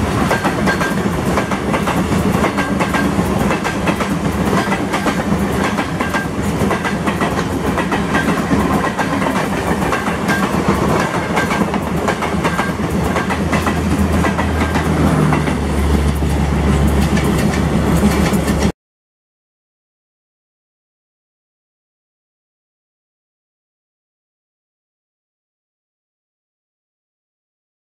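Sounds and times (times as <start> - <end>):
diesel locomotive idling: 0.0 - 18.7
train wheels clacking over rail joints: 0.0 - 18.7.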